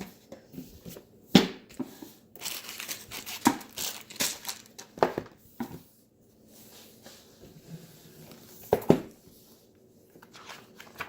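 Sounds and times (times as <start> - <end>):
packaging tearing and crinkling: 2.4 - 4.9.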